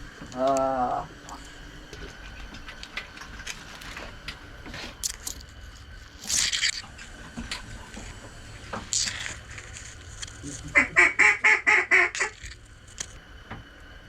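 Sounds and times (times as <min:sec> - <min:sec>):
hissing rustle: 0:00.0 - 0:14.0
steady low rumble: 0:00.0 - 0:14.0
faint rustling and scraping: 0:01.1 - 0:10.8.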